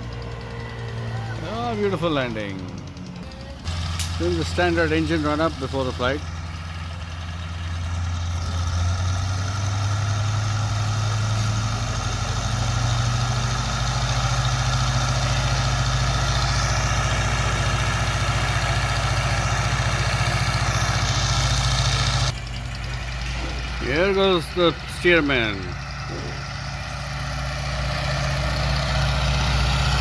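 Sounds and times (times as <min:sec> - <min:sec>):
biplane radial engine running: 0:00.0 - 0:30.0.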